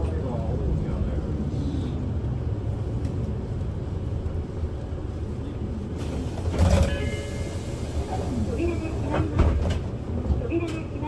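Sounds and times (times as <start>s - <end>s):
low road rumble: 0.0s - 7.0s
bus engine hum: 0.0s - 11.0s.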